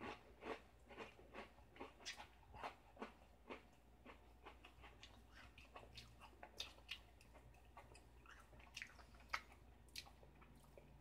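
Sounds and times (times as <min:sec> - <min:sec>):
faint cookie chewing: 0:00.0 - 0:11.0.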